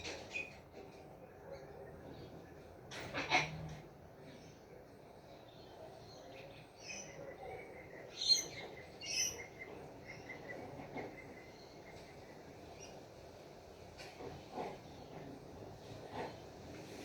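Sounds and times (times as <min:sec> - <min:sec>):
birds chirping: 0:04.0 - 0:13.1.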